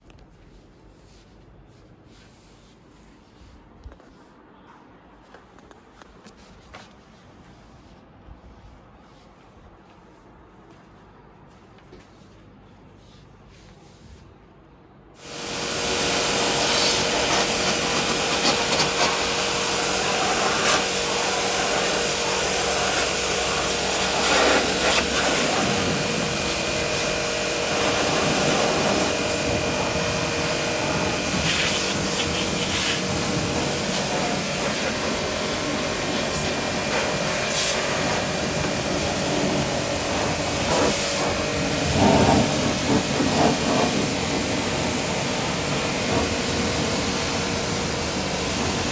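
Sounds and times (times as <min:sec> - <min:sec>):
faint motor hum: 0:15.2 - 0:48.9
machine whooshing hiss: 0:15.2 - 0:48.9.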